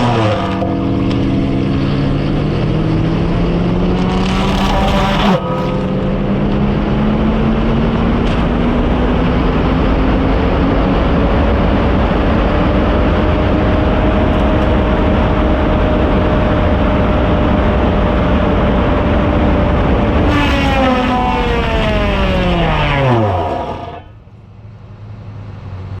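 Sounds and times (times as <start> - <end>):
power saw cutting: 0.0 - 3.0, 3.8 - 6.3, 20.2 - 24.3.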